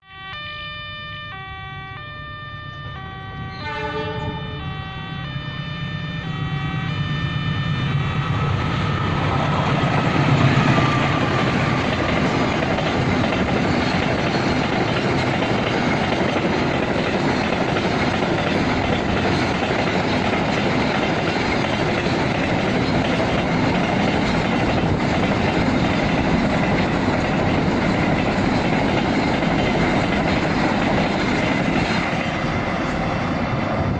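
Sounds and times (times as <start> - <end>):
electronic tones: 0.1 - 8.4
diesel locomotive rumble: 2.6 - 33.9
wheels on rails: 8.2 - 33.9.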